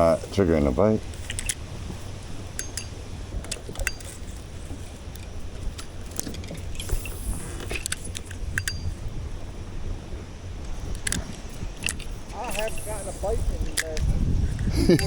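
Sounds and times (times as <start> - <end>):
steady low rumble: 0.0 - 15.0
fishing tackle clicks and clinks: 1.1 - 9.2, 10.6 - 14.1.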